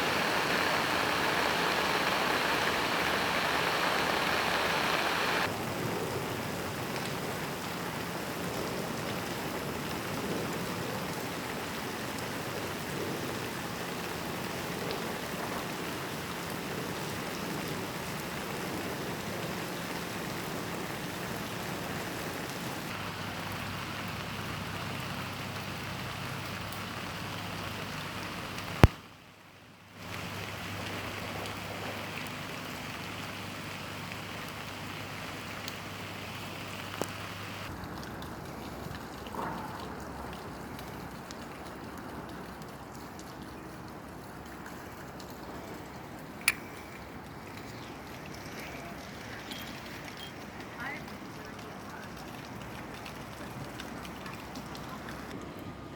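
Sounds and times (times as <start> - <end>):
steady rain falling: 0.0 - 55.8
sharp click: 46.4 - 46.8.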